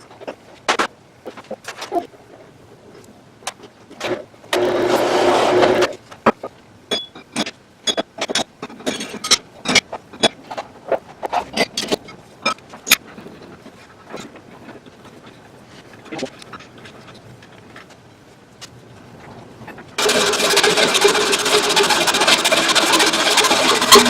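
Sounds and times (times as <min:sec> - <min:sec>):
power tool running: 0:04.6 - 0:05.9, 0:20.0 - 0:24.0.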